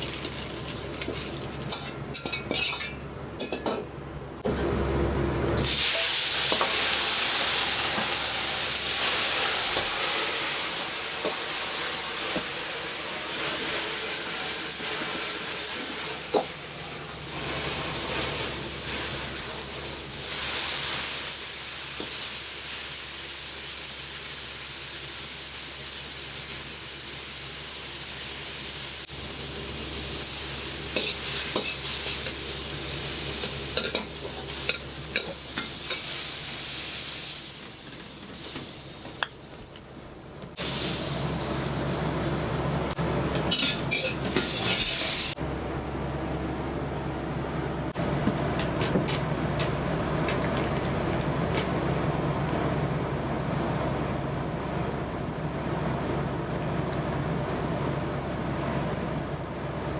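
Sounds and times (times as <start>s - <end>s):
food sizzling in a pan: 0.0s - 3.6s, 5.6s - 39.7s, 40.5s - 45.4s.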